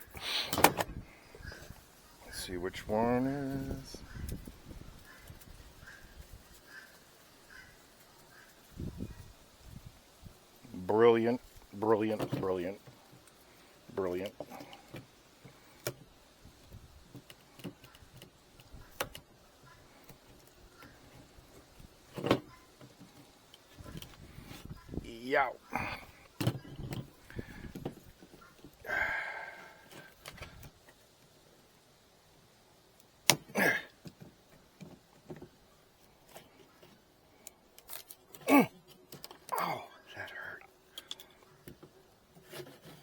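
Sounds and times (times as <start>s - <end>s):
clicks handling wooden frames: 0.4s - 1.7s
wooden frames clicking and tapping: 0.4s - 1.7s, 17.0s - 24.7s, 26.2s - 28.8s, 33.2s - 35.7s
person crying out: 38.4s - 38.7s, 39.5s - 40.0s.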